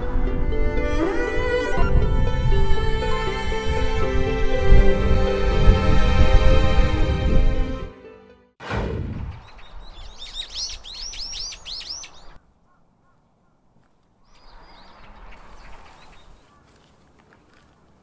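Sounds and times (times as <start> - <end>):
small bird singing chirps: 9.4 - 12.8, 14.2 - 16.6.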